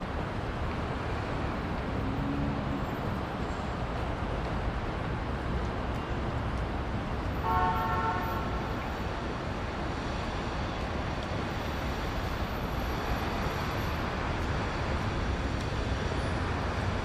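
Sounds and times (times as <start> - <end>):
city traffic rumble: 0.0 - 17.0
vehicle horn toot: 7.4 - 8.5.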